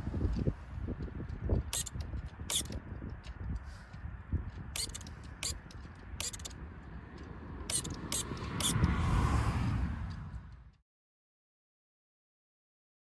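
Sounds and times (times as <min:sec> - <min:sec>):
sharp clicks and rattles: 0:01.6 - 0:03.3, 0:04.8 - 0:06.6, 0:07.7 - 0:09.0.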